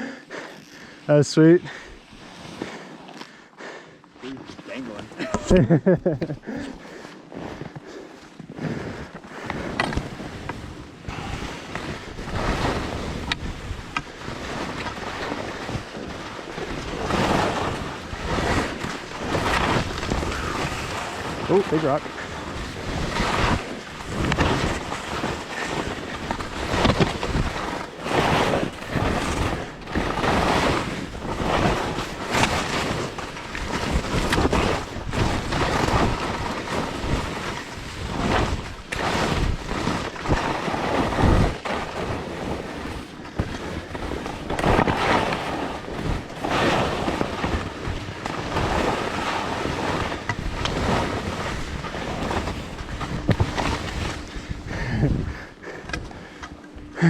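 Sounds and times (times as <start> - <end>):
skis scraping over snow: 0.0 - 56.5
wind buffeting microphone: 51.5 - 56.2.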